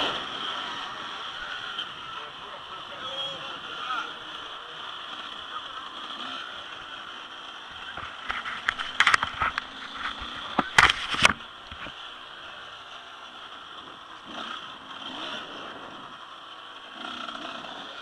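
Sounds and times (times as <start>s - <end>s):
distant motocross bikes droning: 0.0s - 18.0s
sharp clicks and knocks: 7.9s - 12.0s.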